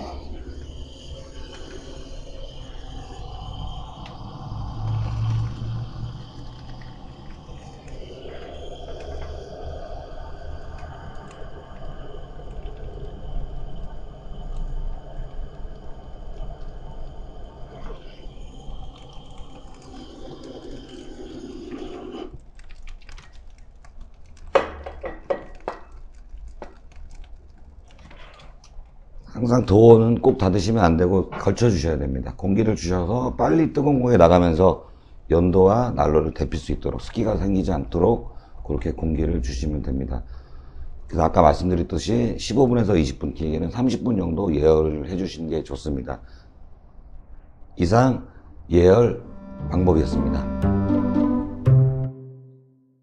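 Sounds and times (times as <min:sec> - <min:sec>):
fire low rumble: 0:00.0 - 0:22.5
faint fire crackles: 0:00.0 - 0:32.4.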